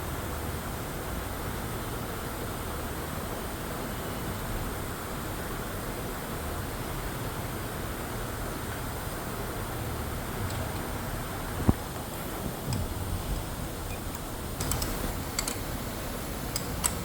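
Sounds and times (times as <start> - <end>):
factory ambience: 8.8 - 17.0.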